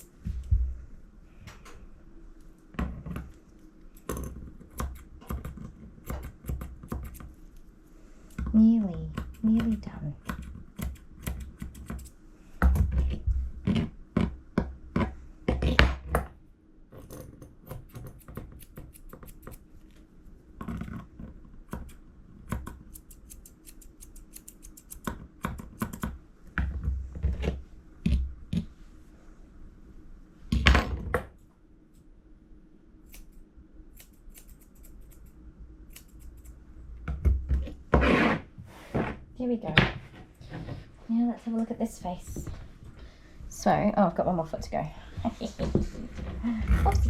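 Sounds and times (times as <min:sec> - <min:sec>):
scissors snipping: 0:17.7 - 0:19.6, 0:21.8 - 0:26.0, 0:33.1 - 0:36.6.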